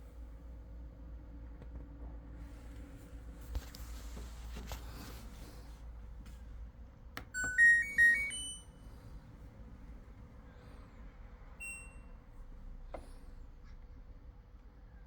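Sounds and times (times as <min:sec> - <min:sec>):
washing machine electronic tune: 0:07.3 - 0:08.9, 0:11.6 - 0:12.2.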